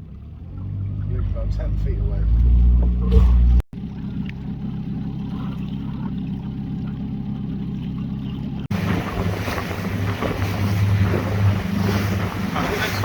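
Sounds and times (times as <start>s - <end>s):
boat engine running: 0.0s - 13.0s
wind buffeting microphone: 8.7s - 13.0s.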